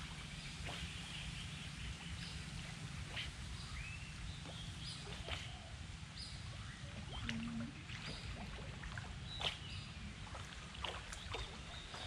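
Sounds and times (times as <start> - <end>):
low steady rumble: 0.0 - 12.0
bird calls and chirps: 0.2 - 7.3, 9.2 - 10.4, 11.0 - 12.0.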